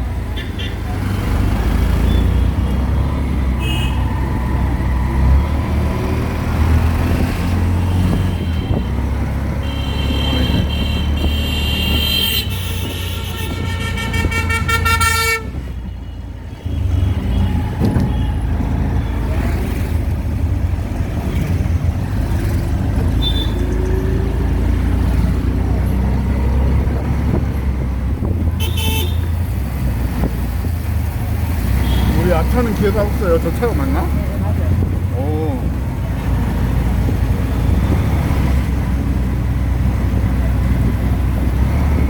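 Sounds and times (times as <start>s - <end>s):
auto-rickshaw engine rumbling: 0.0s - 42.0s
traffic horns honking: 0.2s - 1.1s, 1.7s - 4.3s, 7.7s - 19.5s, 23.0s - 25.2s, 28.3s - 30.2s, 31.5s - 34.9s.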